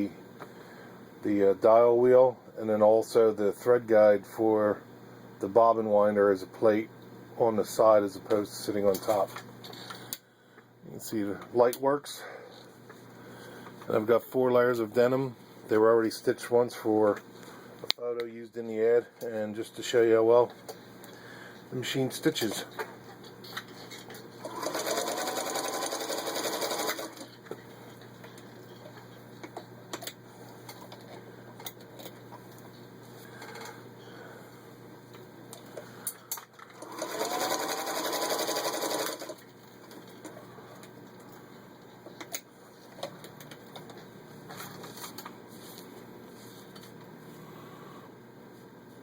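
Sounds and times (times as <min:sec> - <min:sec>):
faint steady hum: 0:00.0 - 0:49.0
sewing machine stitching: 0:24.4 - 0:27.3, 0:36.7 - 0:39.4.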